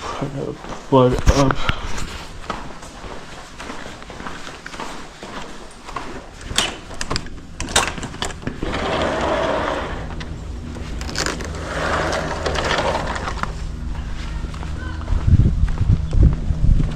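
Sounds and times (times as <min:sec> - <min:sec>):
air-conditioning unit humming: 0:00.0 - 0:16.9.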